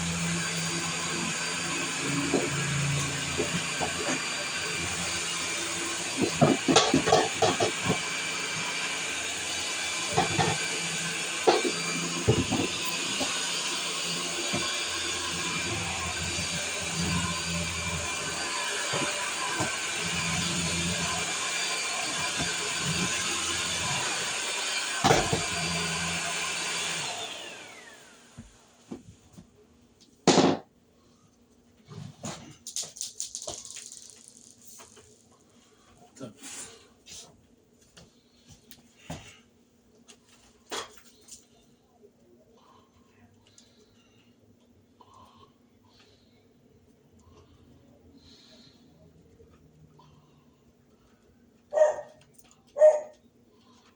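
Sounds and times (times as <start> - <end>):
vacuum cleaner running: 0.0 - 29.4.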